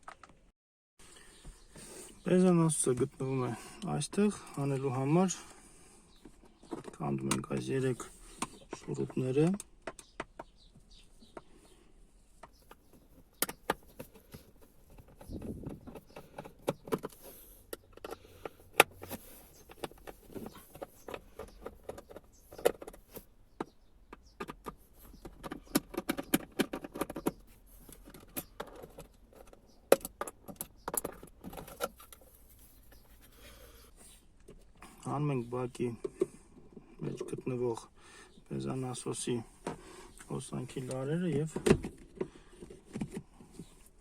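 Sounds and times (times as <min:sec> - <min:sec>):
sharp metallic clicks and rattles: 0:12.6 - 0:32.3.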